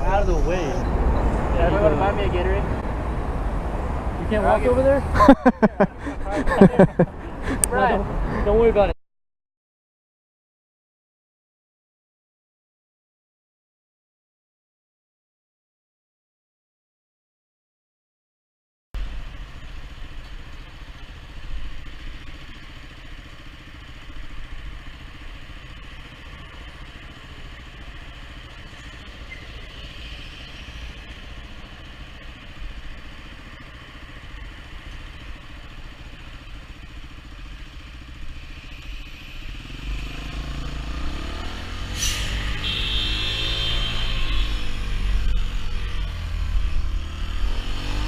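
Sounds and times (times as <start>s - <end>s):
motorcycle engine rumbling: 0.0s - 8.9s, 19.0s - 48.0s
wind and road noise: 0.0s - 9.0s, 19.0s - 48.0s.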